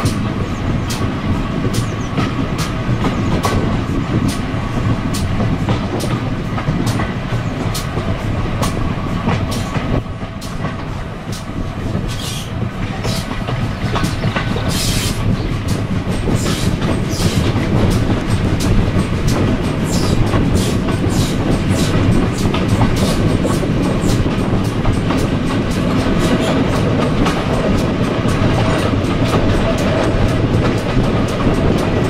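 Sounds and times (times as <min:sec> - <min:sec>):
steady train rumble: 0:00.0 - 0:32.0
wheels clickety-clack over rail joints: 0:00.0 - 0:32.0
wind on microphone: 0:00.0 - 0:32.0.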